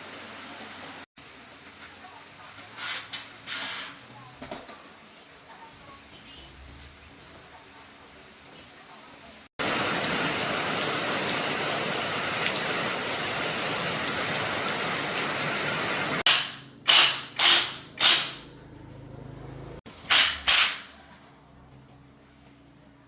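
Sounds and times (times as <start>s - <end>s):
heavy rain: 9.6s - 16.2s
sharp loud bangs: 16.3s - 18.4s.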